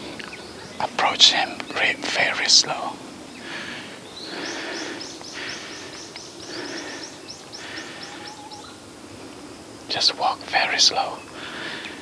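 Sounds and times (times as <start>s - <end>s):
forest background hiss: 0.0s - 12.0s
bird rising chirps: 4.0s - 8.8s.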